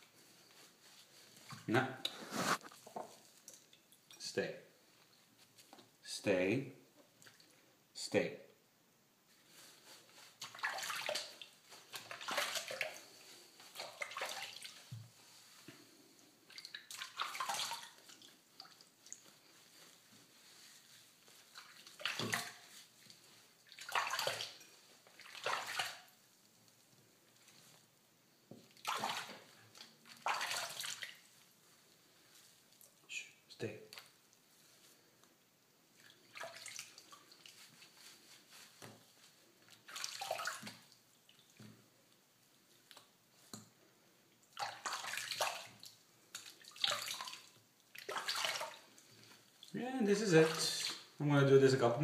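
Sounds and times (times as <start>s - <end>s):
water splashing in a bathtub: 0.1s - 4.2s, 7.0s - 7.7s, 9.5s - 27.9s, 28.5s - 43.6s, 44.2s - 51.2s
water dripping: 2.9s - 4.2s, 16.5s - 19.4s, 21.5s - 26.2s.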